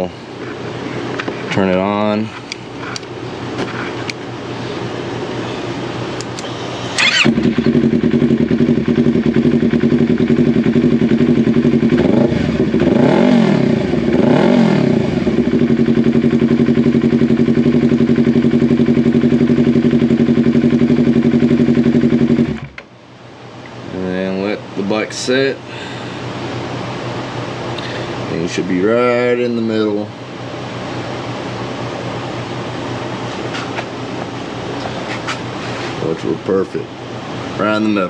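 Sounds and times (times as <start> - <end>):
engine rev blips: 6.2 - 15.8
motorcycle engine idling: 7.0 - 13.0, 15.1 - 22.8.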